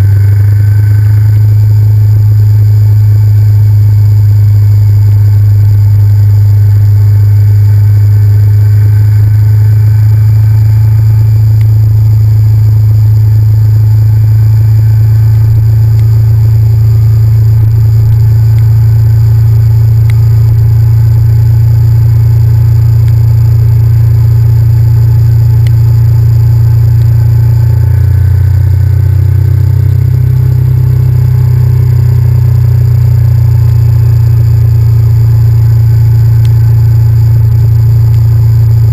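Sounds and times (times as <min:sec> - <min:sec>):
motorcycle engine cruising: 0:00.0 - 0:21.4.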